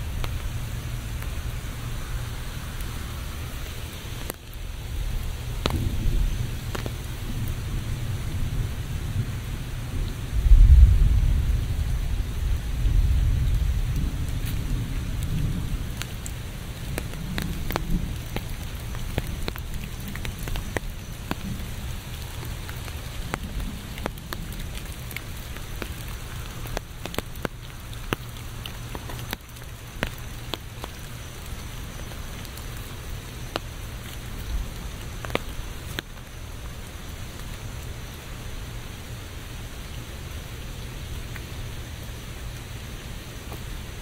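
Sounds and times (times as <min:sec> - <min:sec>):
low rumble: 0:00.0 - 0:18.9
raindrops ticking close by: 0:00.0 - 0:44.0
steady rain hiss: 0:00.0 - 0:44.0.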